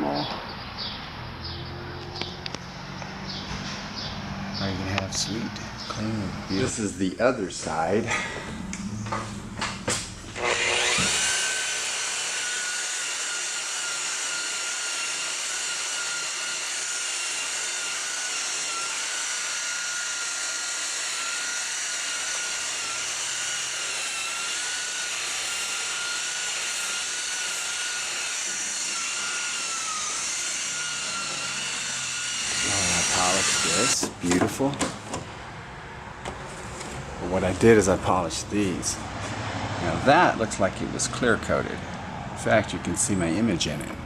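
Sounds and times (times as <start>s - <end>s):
polishing machine whining: 1.6s - 34.1s
clicks: 8.4s - 10.1s.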